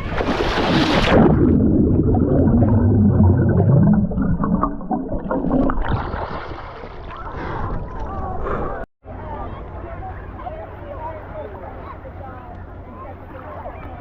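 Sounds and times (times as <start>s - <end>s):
splash into water: 0.0s - 1.8s, 5.1s - 8.0s
underwater gurgling and bubbling: 0.7s - 6.3s.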